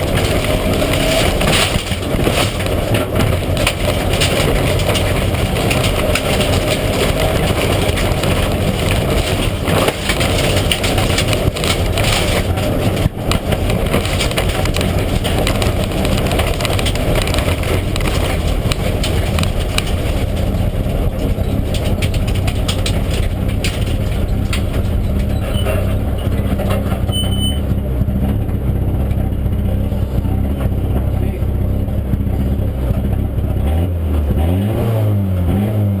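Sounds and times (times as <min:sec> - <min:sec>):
rally car engine running: 0:00.0 - 0:36.0.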